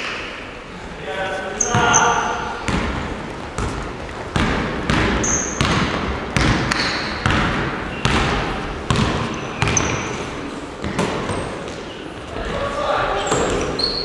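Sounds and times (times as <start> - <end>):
basketball bouncing on gym floor: 1.6 - 11.8
short high squeaks: 13.2 - 14.0.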